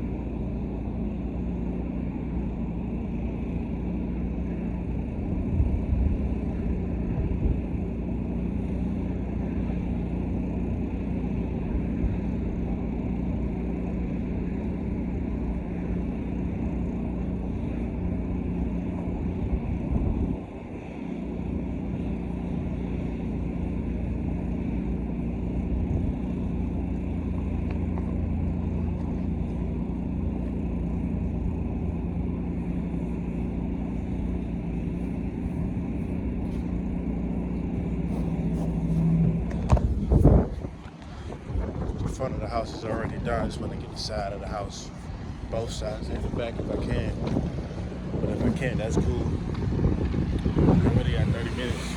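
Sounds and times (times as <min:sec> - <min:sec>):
pressure washer engine running: 0:20.7 - 0:51.9.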